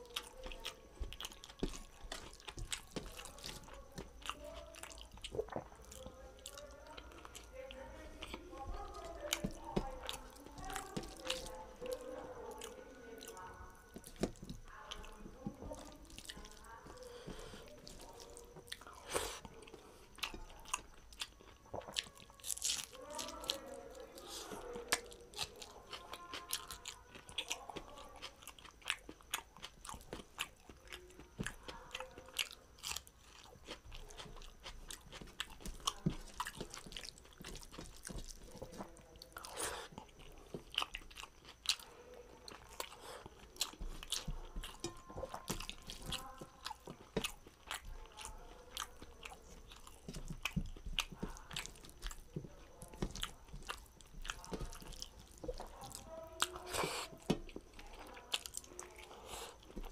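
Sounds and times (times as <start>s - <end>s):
chewing with wet mouth smacks: 0.0s - 59.9s
fingers mixing food on steel plate: 33.6s - 59.9s.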